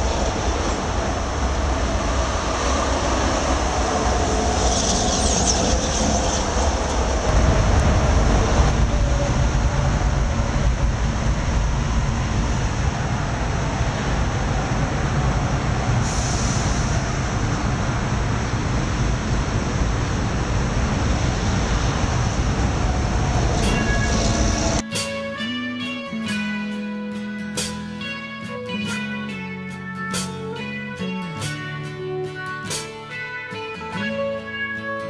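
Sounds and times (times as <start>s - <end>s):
train wheels rumbling on rail: 0.0s - 24.8s
high-pitched wheel squeals: 4.3s - 7.3s, 23.4s - 24.8s.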